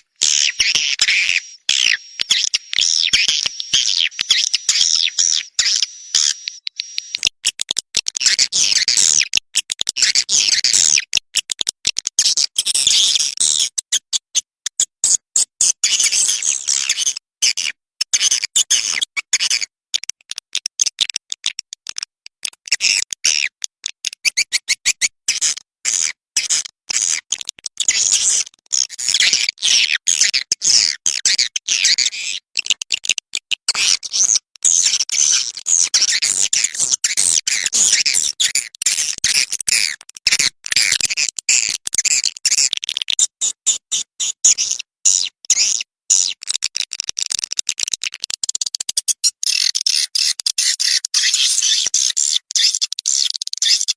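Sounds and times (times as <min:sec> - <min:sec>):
songbird chattering and trilling: 0:00.0 - 0:07.2.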